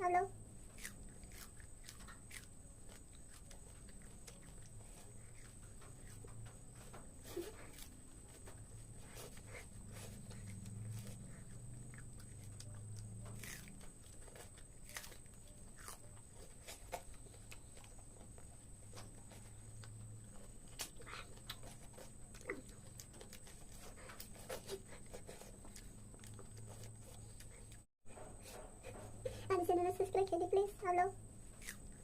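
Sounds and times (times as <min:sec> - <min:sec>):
person crunching raw vegetables: 0:00.5 - 0:27.9, 0:31.4 - 0:32.0.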